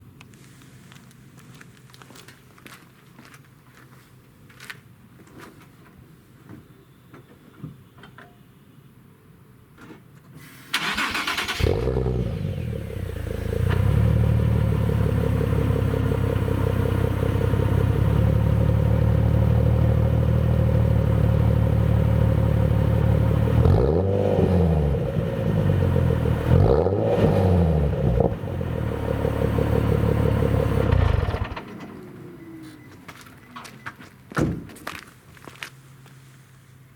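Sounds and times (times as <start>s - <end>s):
engine revving: 10.8s - 15.0s, 23.4s - 31.6s
car engine idling: 10.8s - 23.6s, 28.4s - 32.3s.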